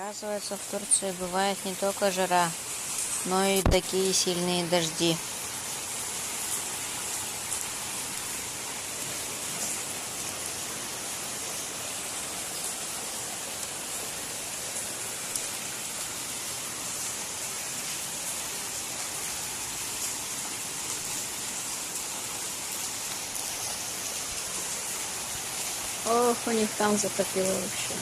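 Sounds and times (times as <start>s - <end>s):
heavy rain hissing: 0.0s - 28.0s
faint raindrop ticks: 2.9s - 4.0s, 15.3s - 15.6s.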